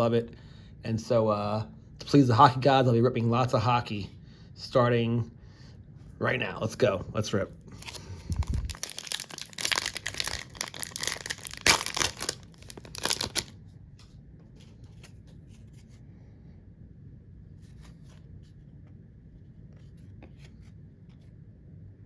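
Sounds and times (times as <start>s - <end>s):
wrapper crinkling and tearing: 7.8s - 13.6s.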